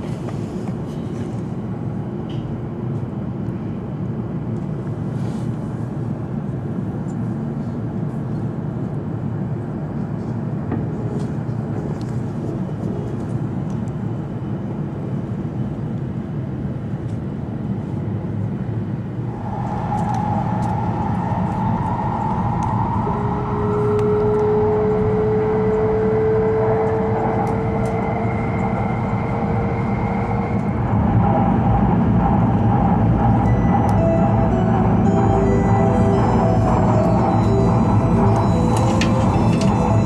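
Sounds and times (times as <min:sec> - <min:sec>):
train running noise with whine: 0:00.0 - 0:40.0
train cabin hum: 0:16.9 - 0:40.0.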